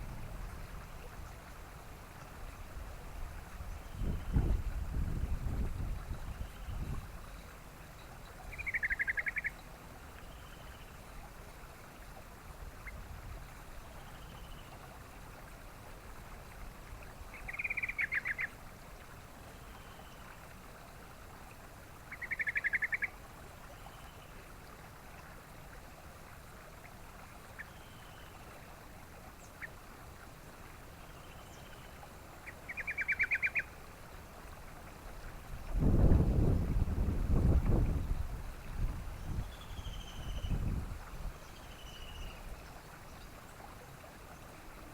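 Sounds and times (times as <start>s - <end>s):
faint background hiss: 0.0s - 44.9s
bird calling in pulsed trills: 8.0s - 9.7s, 17.3s - 18.5s, 22.1s - 23.1s, 32.4s - 33.7s.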